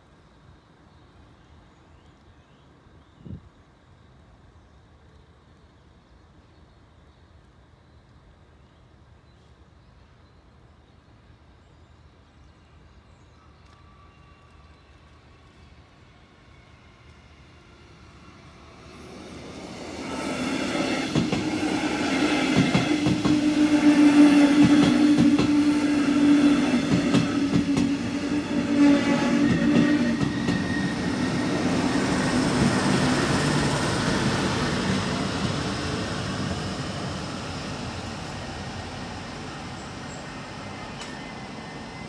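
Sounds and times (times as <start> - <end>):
train hum: 12.2 - 42.0.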